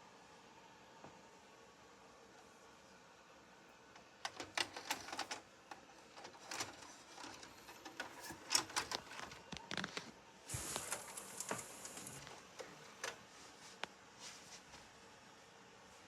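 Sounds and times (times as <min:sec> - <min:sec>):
cassette loaded into a vcr: 0:04.2 - 0:13.2.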